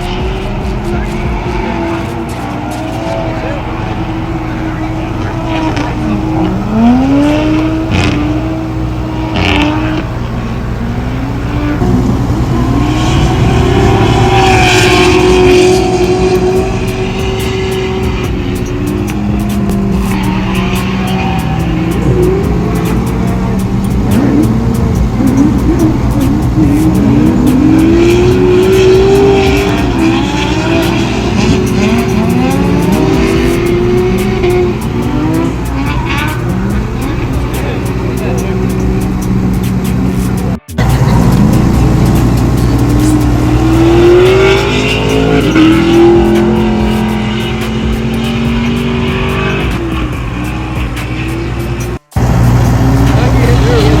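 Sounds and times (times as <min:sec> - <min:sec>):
car engines revving: 0:00.0 - 0:54.0
tyre squeal: 0:13.4 - 0:52.1.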